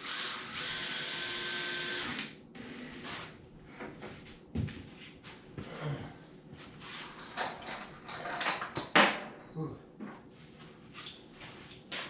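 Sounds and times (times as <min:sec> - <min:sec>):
power drill driving screw: 0:00.0 - 0:03.4.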